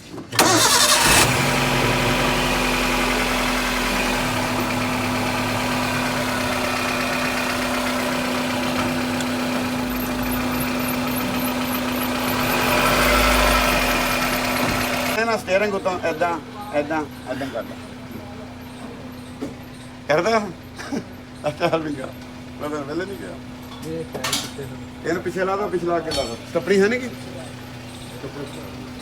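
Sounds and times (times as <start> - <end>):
car engine running: 0.4 - 15.2, 24.8 - 29.0.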